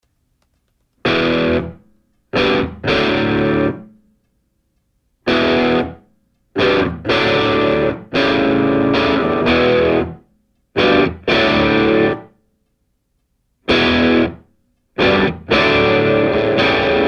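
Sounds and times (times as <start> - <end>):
distorted electric guitar chords: 1.0 - 1.8, 2.4 - 3.9, 5.3 - 6.0, 6.6 - 10.2, 10.8 - 12.3, 13.7 - 14.4, 15.0 - 17.0.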